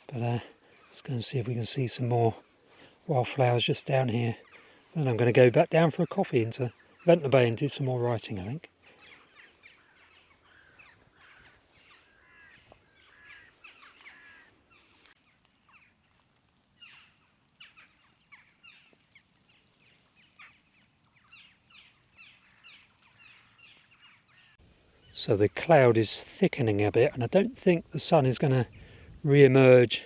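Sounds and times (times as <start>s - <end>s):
small birds twittering: 4.1s - 25.4s.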